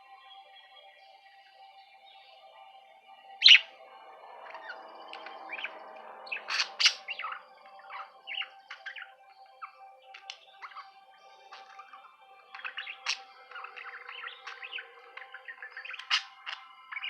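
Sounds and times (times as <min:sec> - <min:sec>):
budgerigar chirping: 0:03.4 - 0:03.7, 0:04.6 - 0:10.9, 0:11.5 - 0:17.0.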